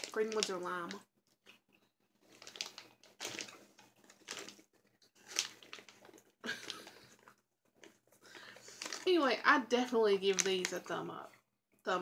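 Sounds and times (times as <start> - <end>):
chewing gummy candy: 0.0 - 9.2.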